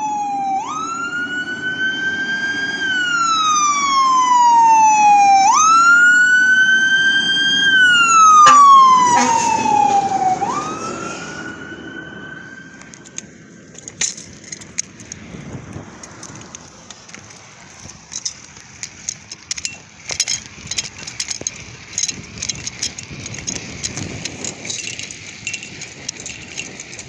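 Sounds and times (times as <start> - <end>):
truck rumbling on road: 0.0 - 27.0
loose metal gear rattling: 8.4 - 9.3, 13.0 - 27.0.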